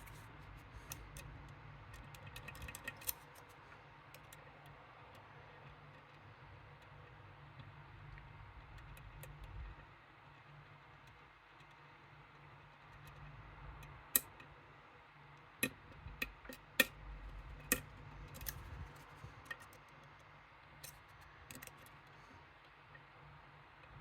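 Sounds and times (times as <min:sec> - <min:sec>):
lock picks clicking in lock: 0:02.0 - 0:03.5.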